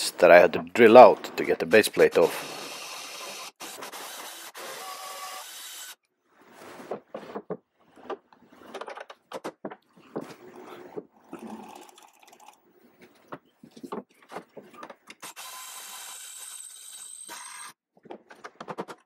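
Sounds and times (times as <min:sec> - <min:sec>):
power drill running: 0:02.4 - 0:06.0, 0:15.2 - 0:17.8.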